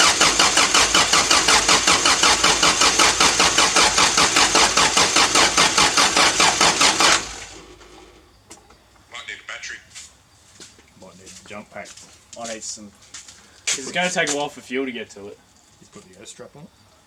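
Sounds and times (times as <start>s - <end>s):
engine cranking on starter motor: 0.0s - 8.7s.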